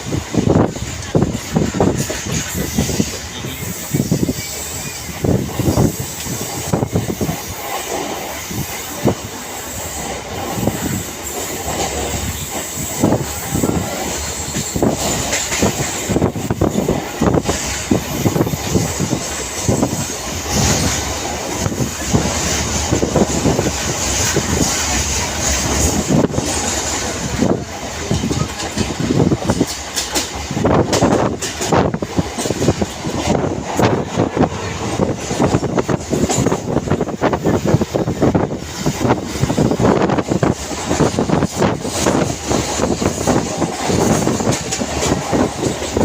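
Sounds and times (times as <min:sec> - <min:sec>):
train running noise: 0:00.0 - 0:46.0
train wheels knocking over rail joints: 0:09.9 - 0:37.8.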